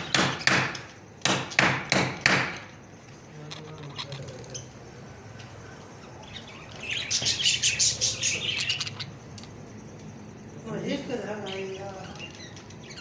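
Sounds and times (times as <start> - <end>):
parrot shrill chirping calls: 5.8 - 9.4, 11.4 - 13.0.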